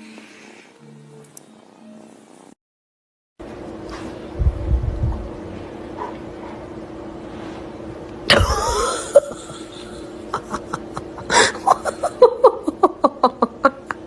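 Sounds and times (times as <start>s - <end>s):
person laughing: 8.3s - 14.0s.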